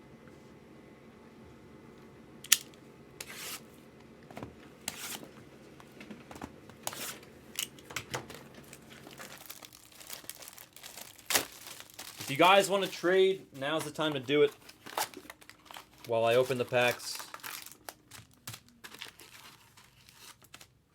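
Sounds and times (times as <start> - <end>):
plastic packaging tearing and crinkling: 6.9 - 20.9.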